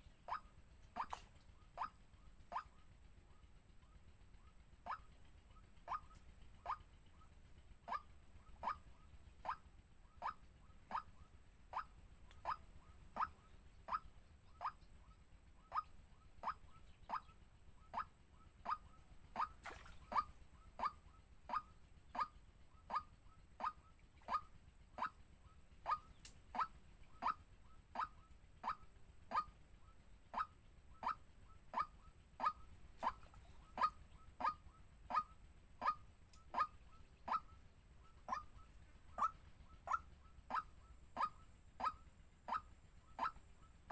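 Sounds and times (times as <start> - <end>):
waterhen calling: 0.0 - 2.8, 7.9 - 9.6, 10.2 - 14.9, 15.7 - 25.2, 25.8 - 27.4, 30.4 - 43.9.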